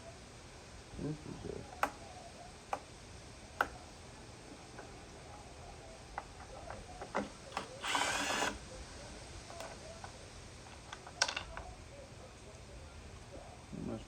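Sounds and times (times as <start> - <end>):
plastic parts clicking and knocking: 10.8 - 11.7.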